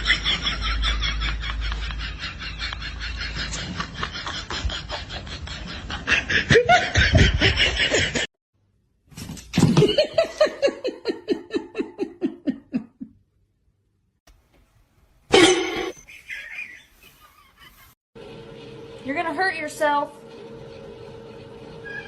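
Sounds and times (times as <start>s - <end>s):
person laughing: 0.0s - 8.3s, 9.8s - 13.2s.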